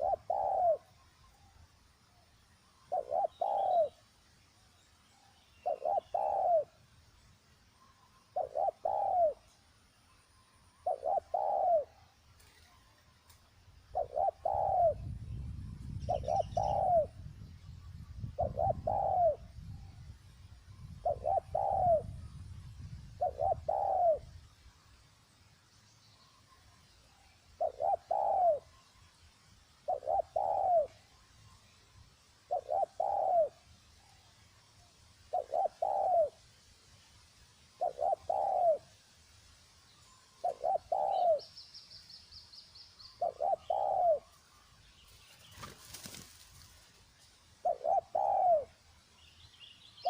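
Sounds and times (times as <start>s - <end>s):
dove cooing: 0.0s - 0.9s, 2.9s - 4.0s, 5.6s - 6.8s, 8.3s - 9.6s, 10.8s - 12.7s, 13.9s - 15.2s, 15.9s - 17.3s, 18.2s - 19.7s, 20.9s - 22.2s, 23.1s - 24.3s, 27.6s - 28.8s, 29.8s - 31.0s, 32.5s - 33.7s, 35.3s - 36.4s, 37.8s - 39.0s, 40.4s - 41.5s, 43.2s - 44.4s, 47.5s - 48.8s.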